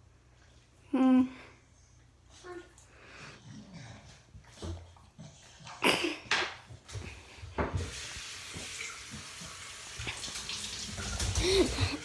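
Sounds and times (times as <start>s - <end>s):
water running: 7.3s - 12.0s
bathwater splashing: 7.8s - 12.0s.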